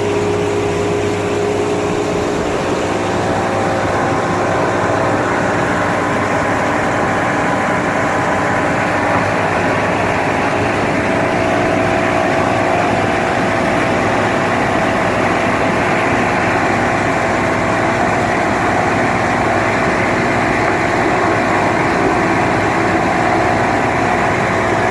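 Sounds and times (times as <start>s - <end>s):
boat engine running: 0.0s - 24.9s.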